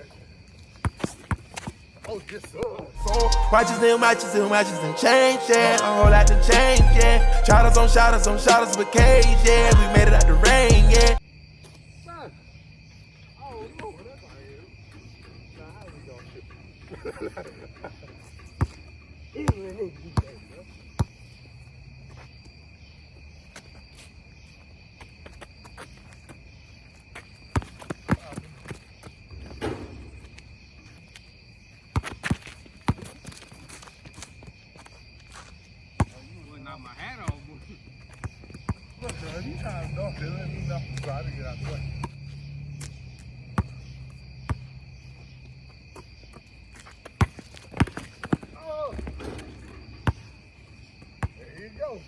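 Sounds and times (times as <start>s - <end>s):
crickets chirring: 0.0s - 52.0s
insects trilling: 11.2s - 52.0s
basketball bouncing: 27.5s - 28.8s, 29.4s - 30.4s, 32.0s - 33.3s, 36.0s - 36.2s, 38.1s - 39.4s, 42.8s - 44.7s, 47.0s - 50.3s.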